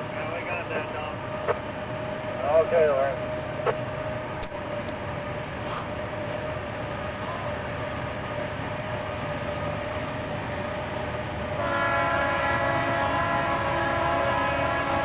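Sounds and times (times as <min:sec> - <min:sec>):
diesel locomotives whining: 0:00.0 - 0:15.0
multi-note locomotive air horn: 0:11.5 - 0:15.0.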